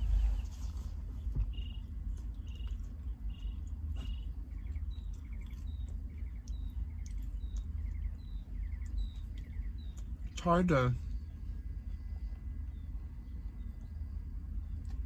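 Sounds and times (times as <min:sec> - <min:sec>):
small birds chirping: 0:00.0 - 0:15.0
steady low rumble: 0:00.0 - 0:15.0
bird trill: 0:01.4 - 0:10.3.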